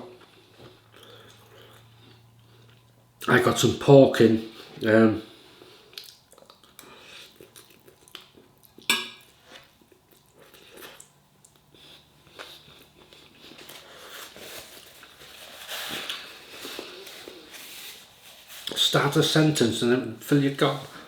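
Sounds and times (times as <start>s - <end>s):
chewing: 5.6s - 14.2s
cutlery clinking against dish: 8.9s - 9.3s.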